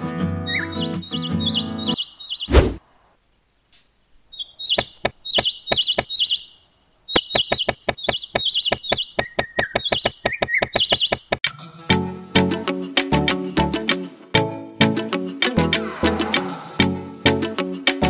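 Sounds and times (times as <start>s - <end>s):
songbirds chirping: 0.0s - 11.4s.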